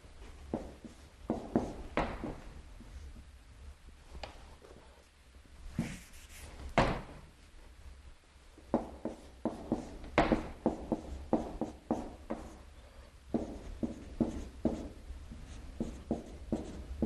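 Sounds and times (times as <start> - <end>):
pen strokes writing: 15.5 - 16.9.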